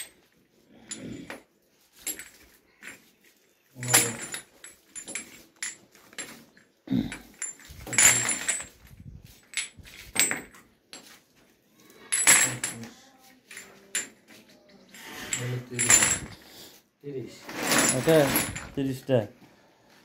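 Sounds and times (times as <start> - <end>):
metal pipe fittings clinking: 0.0 - 11.2, 12.0 - 16.4.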